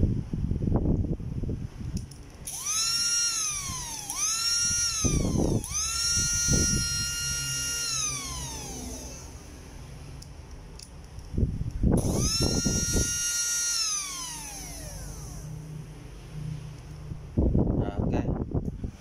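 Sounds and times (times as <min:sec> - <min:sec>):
electric motor whining: 0:02.4 - 0:09.8, 0:12.0 - 0:15.6.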